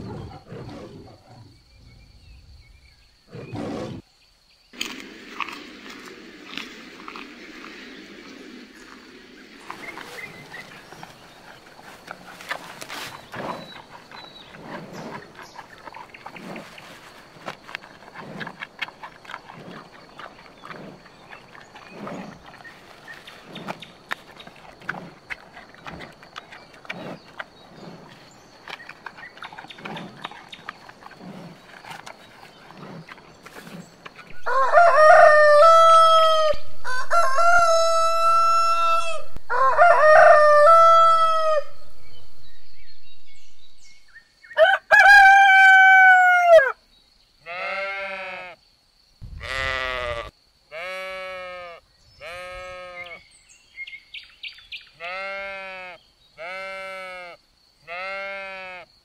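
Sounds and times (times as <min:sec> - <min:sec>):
rooster crowing: 0:34.4 - 0:41.9, 0:44.6 - 0:46.8
sheep bleating: 0:47.5 - 0:48.6, 0:49.4 - 0:53.2, 0:55.0 - 0:58.8.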